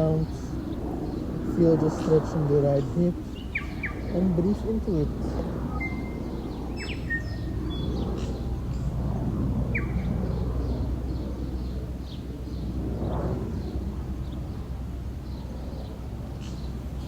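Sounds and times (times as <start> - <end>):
birds chirping: 0.0 - 14.4
low outdoor rumble: 0.0 - 17.0.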